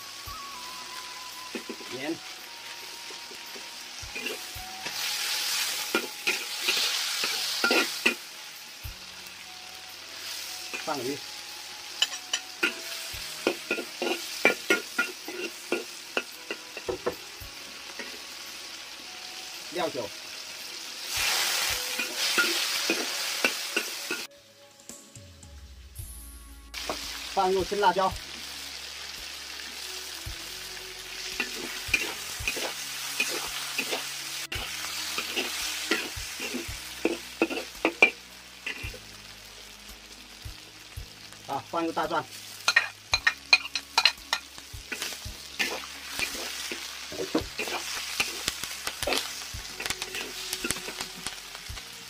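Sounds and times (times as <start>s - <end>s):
food sizzling in a wok: 0.0s - 52.0s
spatula scraping a wok: 4.0s - 8.3s, 11.9s - 17.2s, 20.9s - 24.3s, 31.2s - 39.0s, 42.5s - 51.6s.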